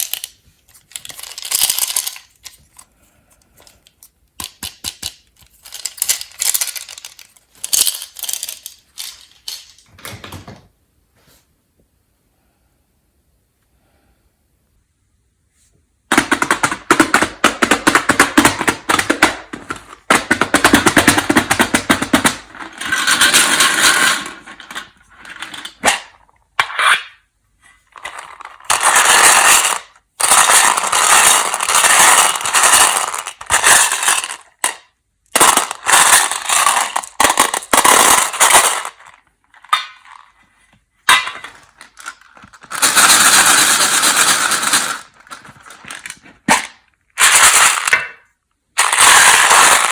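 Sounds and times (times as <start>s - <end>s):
candy pieces clattering: 0.0s - 2.9s, 3.6s - 9.8s, 27.9s - 40.4s, 41.1s - 49.9s
wrapper crinkling: 0.0s - 2.9s, 5.1s - 9.8s.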